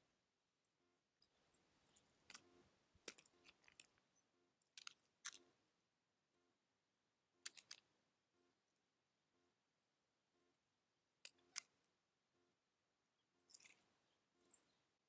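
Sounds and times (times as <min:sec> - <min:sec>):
animal gnawing and cracking food: 0:02.2 - 0:04.0, 0:04.6 - 0:05.5, 0:07.4 - 0:07.8, 0:13.5 - 0:13.8.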